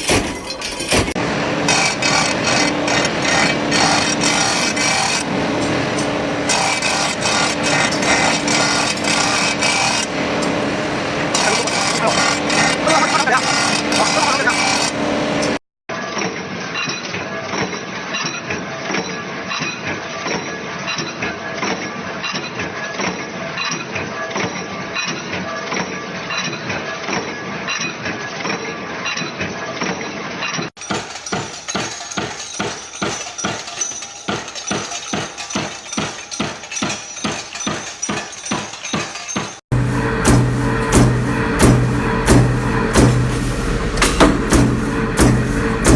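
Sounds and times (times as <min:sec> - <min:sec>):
metal clatter of machinery: 0:00.0 - 0:45.9
machine striking rhythmically: 0:30.8 - 0:45.9.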